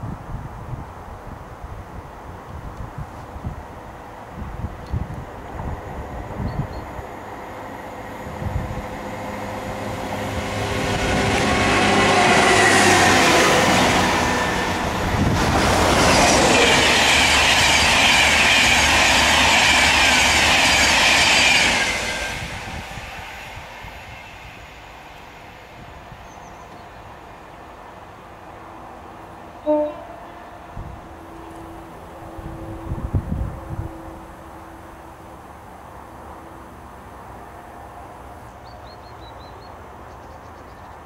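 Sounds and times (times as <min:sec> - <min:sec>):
train passing: 0:03.1 - 0:41.0
high wheel squeal: 0:16.0 - 0:24.7.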